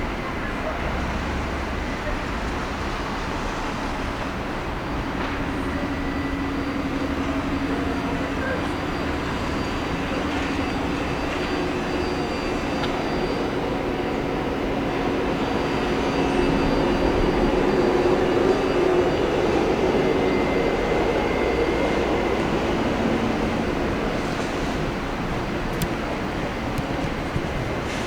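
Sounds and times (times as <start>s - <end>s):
electric train humming: 0.0s - 28.0s
general rumble: 19.8s - 28.0s.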